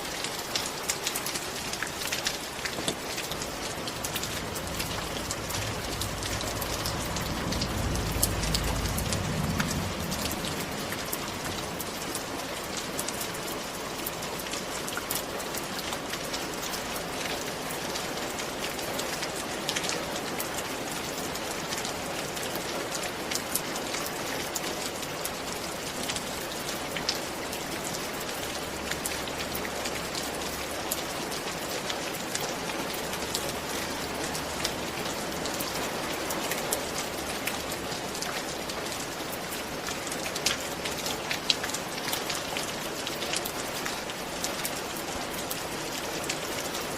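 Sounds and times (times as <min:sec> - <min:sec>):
steady rain falling: 0:00.0 - 0:46.9
low rumble: 0:03.0 - 0:12.9.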